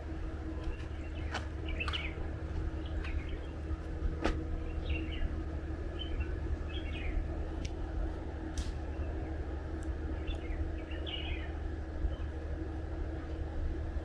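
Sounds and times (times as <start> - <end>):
birds chirping: 0.6 - 3.7, 4.6 - 7.3.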